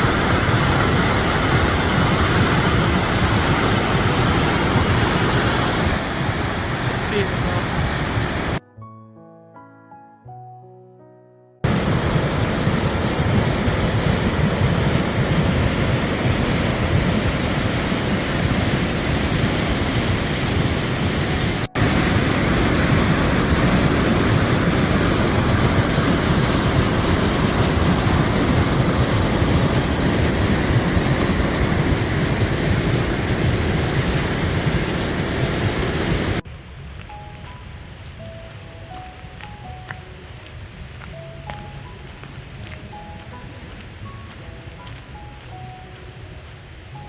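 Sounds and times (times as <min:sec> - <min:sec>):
river rushing: 0:00.0 - 0:08.6, 0:11.6 - 0:36.8.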